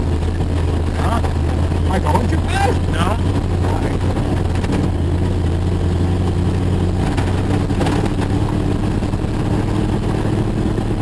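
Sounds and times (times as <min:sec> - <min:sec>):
car engine running: 0:00.0 - 0:11.0
knocks and rattles: 0:03.2 - 0:05.0.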